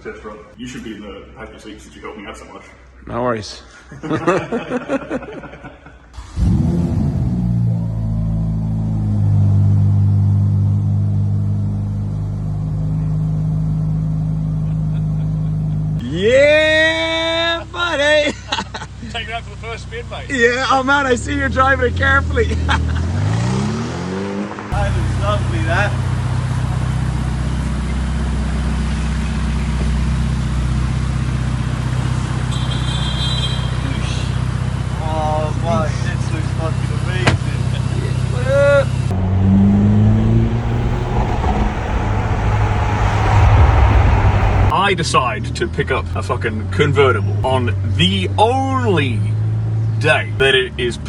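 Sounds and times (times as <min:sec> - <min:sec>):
car engine running at low speed: 0:06.4 - 0:16.0, 0:39.0 - 0:44.7
car engine idling: 0:39.1 - 0:44.7.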